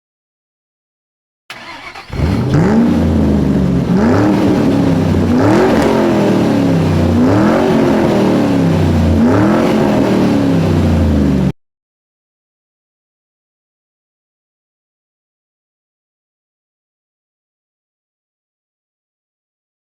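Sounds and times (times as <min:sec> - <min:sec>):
loud engine revving: 0:01.5 - 0:11.5.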